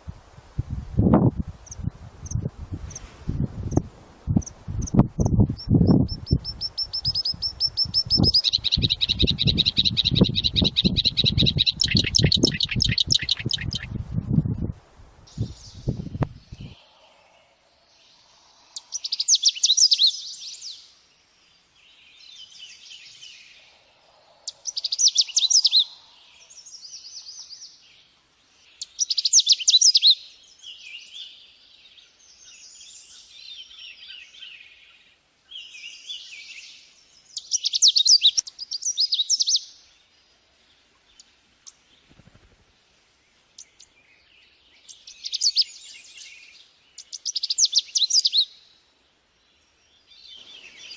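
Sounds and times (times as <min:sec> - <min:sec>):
soft bird twittering: 0:04.4 - 0:13.9, 0:15.3 - 0:20.9, 0:21.8 - 0:28.0, 0:28.6 - 0:39.8, 0:43.6 - 0:48.7
songbird trilling: 0:04.4 - 0:13.9, 0:18.7 - 0:20.5, 0:24.4 - 0:26.6, 0:28.8 - 0:30.2, 0:37.4 - 0:39.7, 0:44.9 - 0:46.2, 0:47.0 - 0:48.6.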